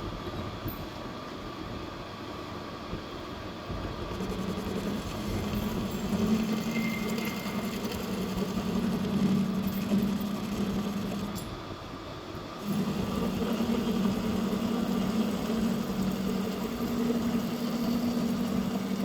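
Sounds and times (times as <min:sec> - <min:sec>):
metal lathe humming: 0:04.1 - 0:11.6, 0:12.6 - 0:19.0.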